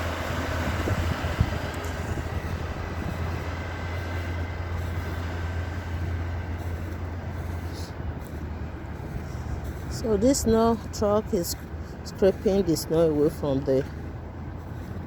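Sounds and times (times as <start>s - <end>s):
plough scraping snow: 0.0s - 15.0s
truck engine droning: 0.0s - 15.0s.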